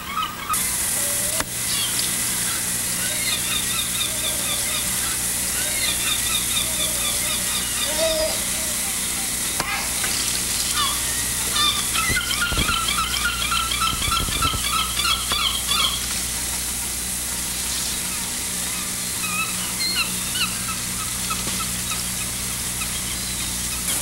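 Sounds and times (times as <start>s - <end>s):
birds chirping: 0.0s - 24.0s
electrical hum: 0.0s - 24.0s.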